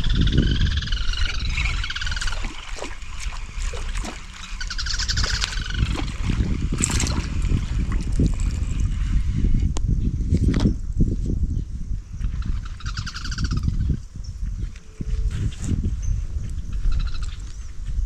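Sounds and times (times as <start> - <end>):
bird singing trilled phrases: 0.0 - 6.6, 11.5 - 17.8
steady low rumble: 0.0 - 18.0.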